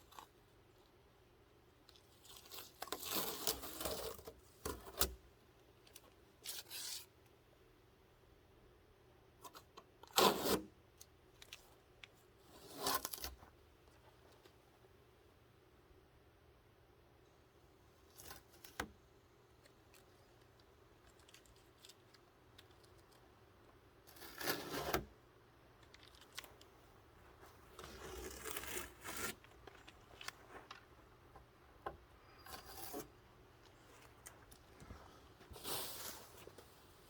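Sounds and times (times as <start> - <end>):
tearing and rubbing handling noises: 1.9 - 5.2, 5.8 - 7.2, 9.5 - 14.6, 18.0 - 37.0.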